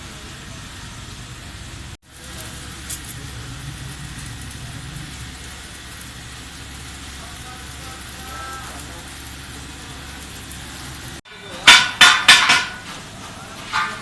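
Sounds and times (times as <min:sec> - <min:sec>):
machine rumble: 0:00.0 - 0:11.2.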